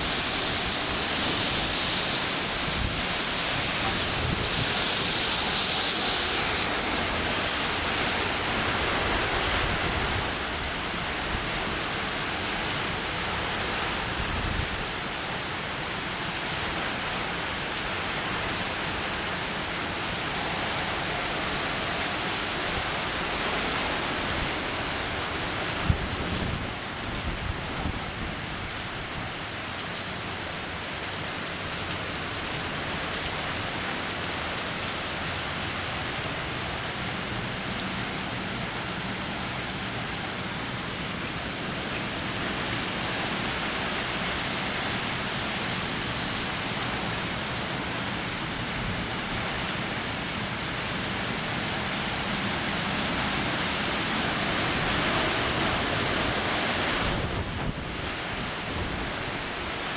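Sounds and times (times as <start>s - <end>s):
driving rain: 0.0s - 59.9s
strong wind: 0.0s - 59.9s.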